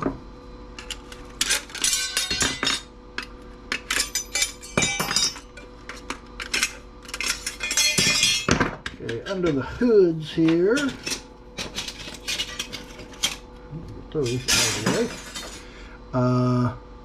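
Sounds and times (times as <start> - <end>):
metal tools clinking on circuit board: 0.8 - 2.9, 3.7 - 9.6.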